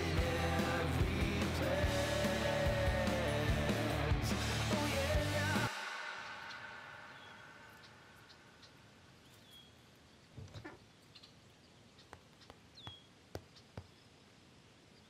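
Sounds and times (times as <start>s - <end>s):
music: 0.0s - 6.4s
faint high bird chirps: 6.1s - 14.2s.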